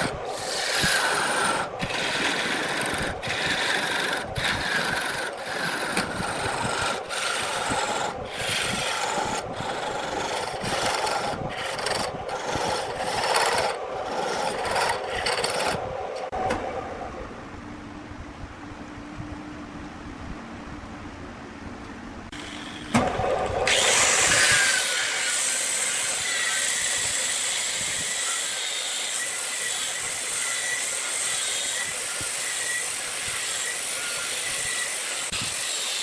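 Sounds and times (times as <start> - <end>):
tool rasping on wood: 0.0 - 15.8.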